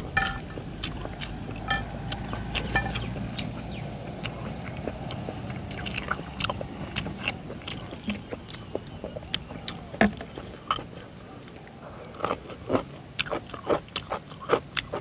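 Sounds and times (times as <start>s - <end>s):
person chewing noodles: 0.0s - 15.0s
wet mouth clicks and smacks: 0.8s - 10.8s.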